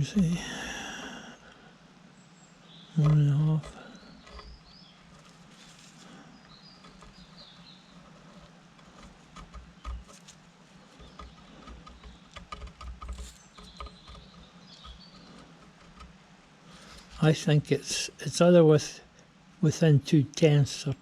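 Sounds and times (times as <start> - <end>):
faint bird chirps: 2.1 - 8.5, 13.0 - 16.0.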